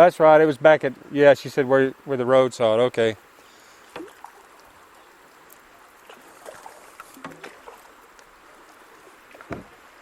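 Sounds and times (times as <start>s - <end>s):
running water: 0.0s - 10.0s
paddle splashes: 3.3s - 10.0s
paddle knocks: 9.3s - 9.8s.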